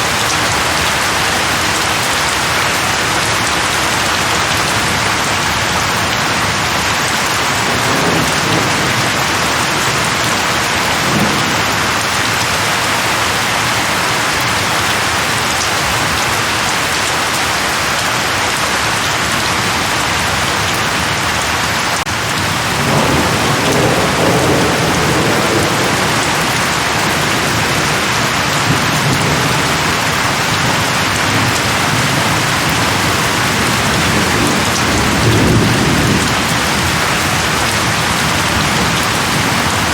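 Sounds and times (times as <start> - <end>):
thunder rumbling: 0.0 - 16.3, 22.0 - 39.9
heavy rain on leaves: 0.0 - 39.9.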